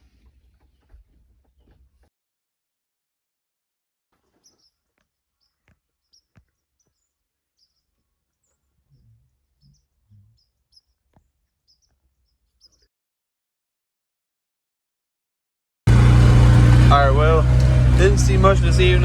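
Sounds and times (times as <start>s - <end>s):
faint small bird chirps: 4.2s - 12.9s.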